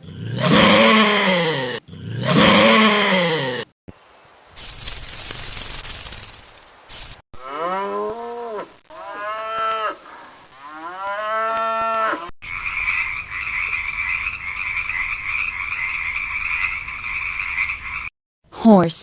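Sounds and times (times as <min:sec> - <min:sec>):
cow mooing: 0:00.0 - 0:03.6.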